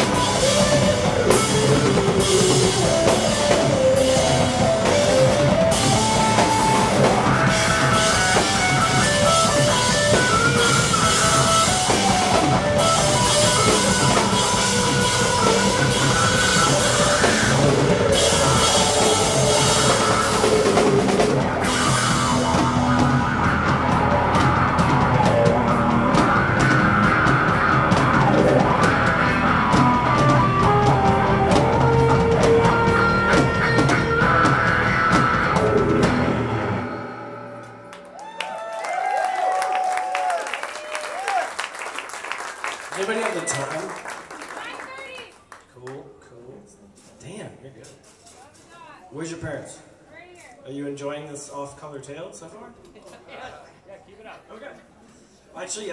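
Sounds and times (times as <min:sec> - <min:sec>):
rock band playing live: 0:00.0 - 0:38.1.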